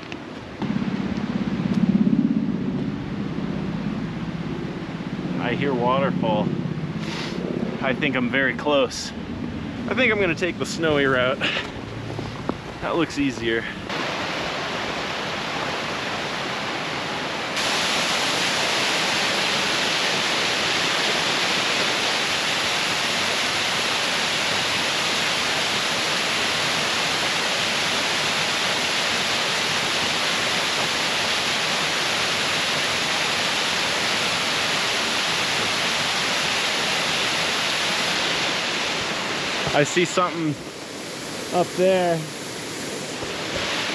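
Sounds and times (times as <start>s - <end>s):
waterfall rushing: 12.9s - 43.9s.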